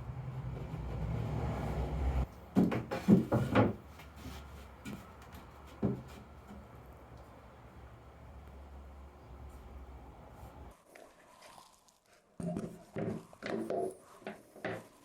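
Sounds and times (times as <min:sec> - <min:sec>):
wooden knocks and clunks: 0:02.5 - 0:06.7.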